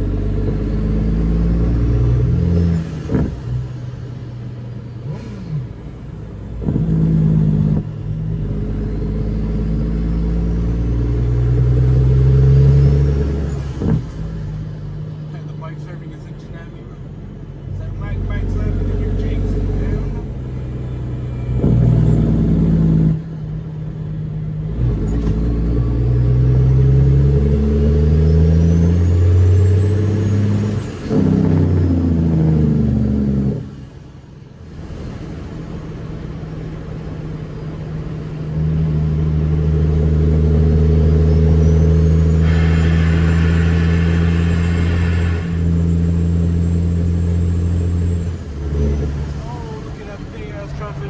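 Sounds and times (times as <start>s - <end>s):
truck diesel engine shifting gears: 0.0s - 51.0s.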